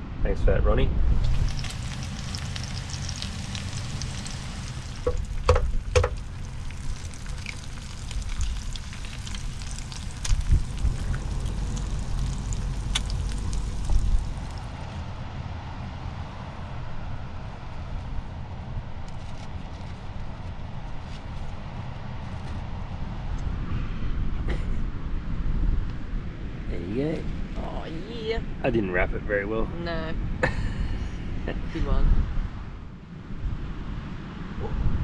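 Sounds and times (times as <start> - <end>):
bacon sizzling in a pan: 1.1 - 14.8.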